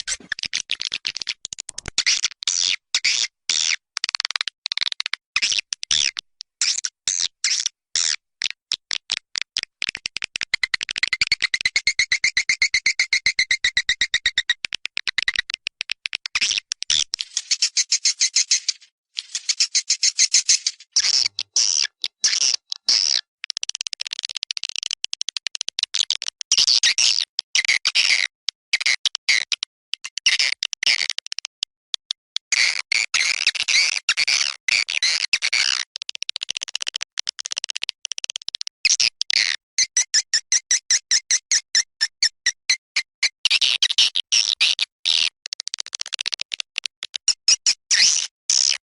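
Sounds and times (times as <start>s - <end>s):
recorded swiftlet calls: 0.0s - 8.2s, 10.7s - 24.3s.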